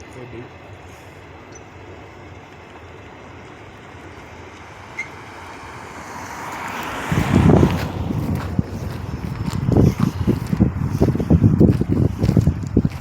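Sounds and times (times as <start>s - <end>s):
low steady rumble: 0.0s - 13.0s
rushing noise: 4.1s - 12.7s
wind buffeting microphone: 5.5s - 13.0s.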